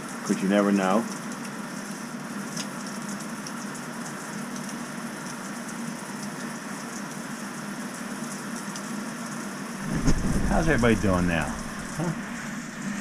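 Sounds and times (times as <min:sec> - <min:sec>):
shower water spraying: 0:09.8 - 0:13.0.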